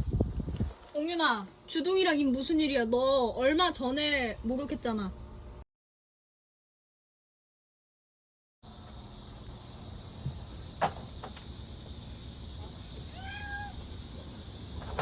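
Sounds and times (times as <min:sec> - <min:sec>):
cicadas buzzing: 0:08.6 - 0:15.0
cat meowing: 0:13.1 - 0:13.9.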